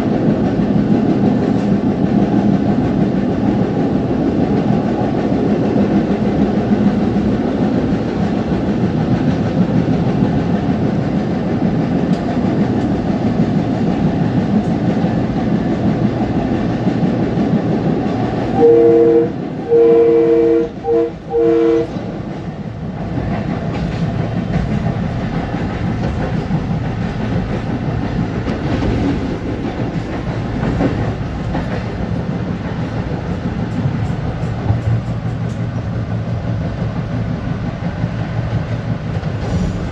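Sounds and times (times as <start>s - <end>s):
electric train rumbling: 0.0s - 39.9s
two-tone train horn blasts: 18.4s - 22.1s
wheel clatter on rails: 22.0s - 39.9s.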